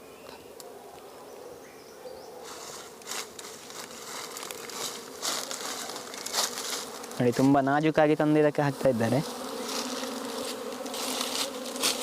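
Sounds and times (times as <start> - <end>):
rustling handling noises: 2.4 - 7.6
bees buzzing: 2.4 - 12.0.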